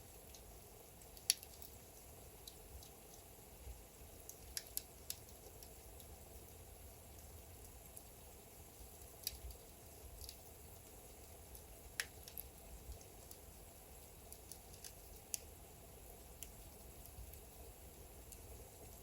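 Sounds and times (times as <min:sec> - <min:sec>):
fire low rumble: 0:00.0 - 0:19.0
logs crackling and popping: 0:00.1 - 0:19.0.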